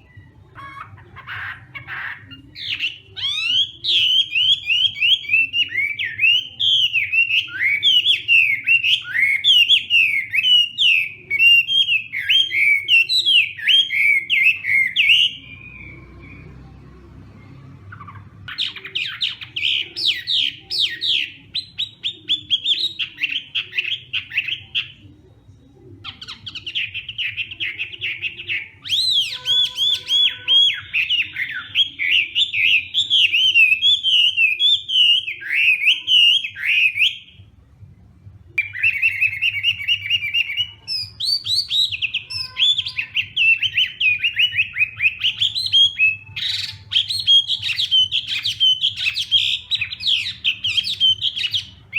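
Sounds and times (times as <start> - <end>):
bird singing whistled phrases: 2.2 - 16.6, 26.1 - 37.4, 38.6 - 51.9.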